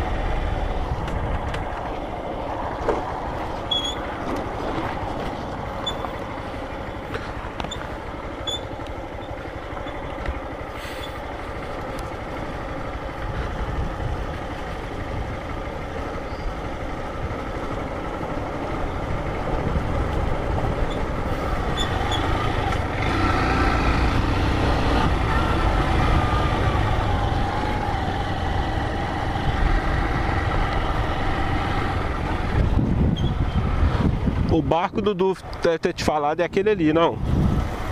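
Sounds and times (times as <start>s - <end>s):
motorcycle engine running: 0.0s - 34.6s
wind noise on microphone: 13.2s - 15.4s, 32.0s - 35.2s, 37.0s - 37.9s.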